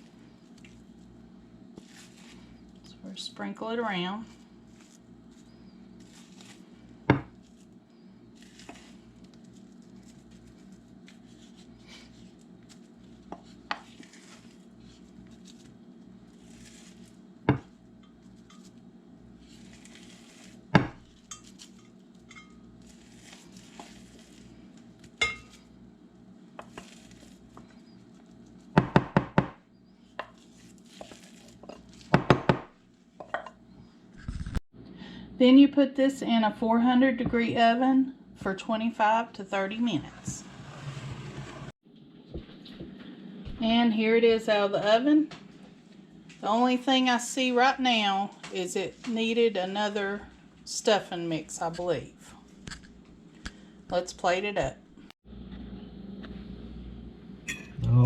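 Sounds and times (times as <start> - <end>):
scraping and rustling crumbs: 0.0 - 3.0, 4.2 - 28.8, 29.9 - 34.6
low steady hum: 0.0 - 58.0.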